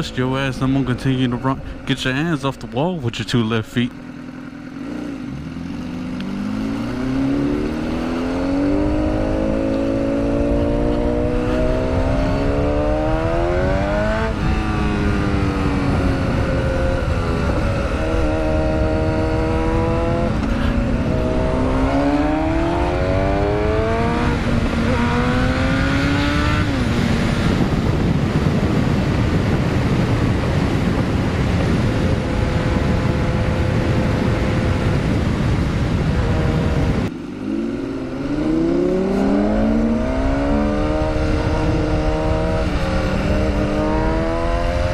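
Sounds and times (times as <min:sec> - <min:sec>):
wind rush: 0:06.3 - 0:44.9.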